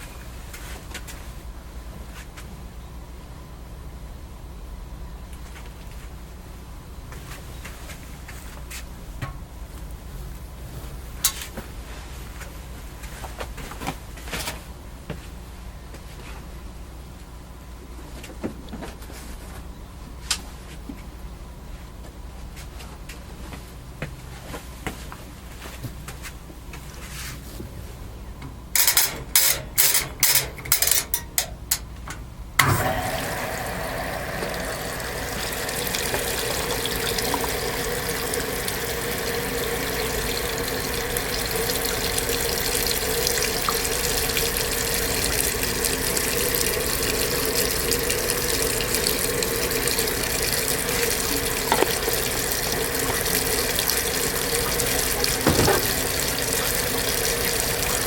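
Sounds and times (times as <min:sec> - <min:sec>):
water rushing into washing machine tub: 0:28.8 - 0:31.4, 0:32.6 - 0:58.0
thump: 0:55.4 - 0:55.9.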